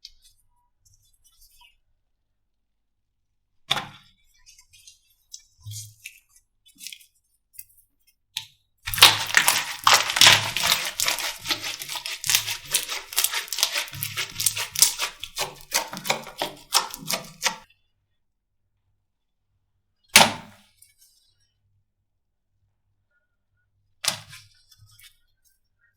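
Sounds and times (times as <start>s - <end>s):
slime crackling and popping: 8.9s - 17.6s.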